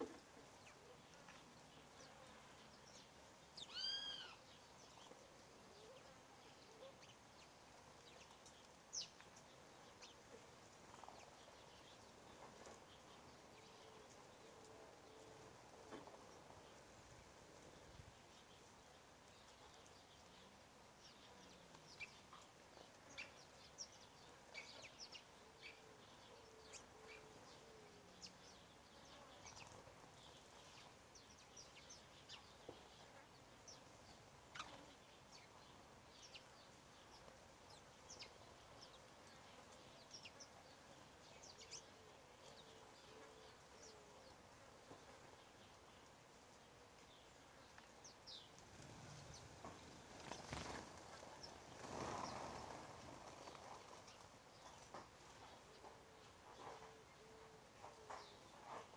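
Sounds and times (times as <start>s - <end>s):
birds chirping: 0.0s - 10.2s, 45.3s - 58.9s
faint background hiss: 0.0s - 58.9s.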